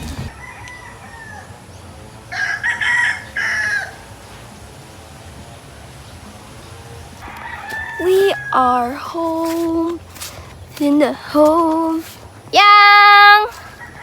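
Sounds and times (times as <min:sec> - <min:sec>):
rooster crowing: 0:00.2 - 0:04.2, 0:07.2 - 0:09.9, 0:13.5 - 0:14.0.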